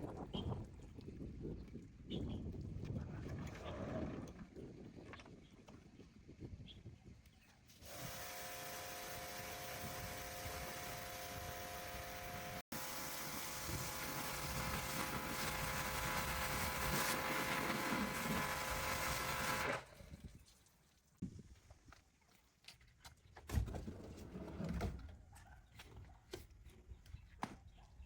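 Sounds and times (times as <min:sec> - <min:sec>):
power tool motor whine: 0:07.8 - 0:19.9.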